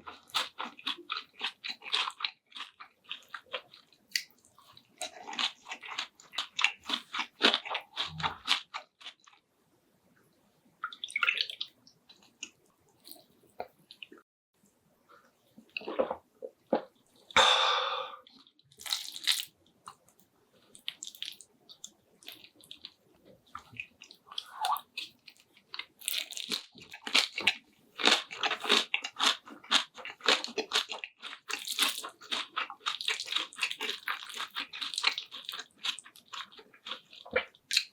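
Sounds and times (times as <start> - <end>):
crunchy chewing: 0.0 - 9.4, 18.3 - 37.9
mouth sounds: 15.8 - 18.3.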